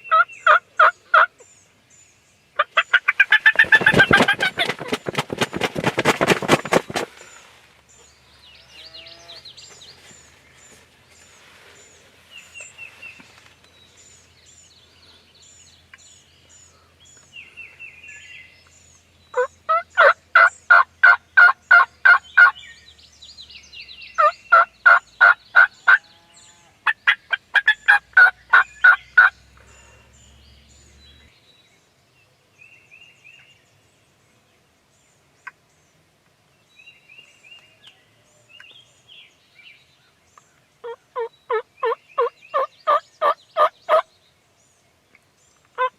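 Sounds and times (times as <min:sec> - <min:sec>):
loud bird calls in runs: 0:03.0 - 0:07.1
faint high chirps of small birds: 0:07.1 - 0:45.9.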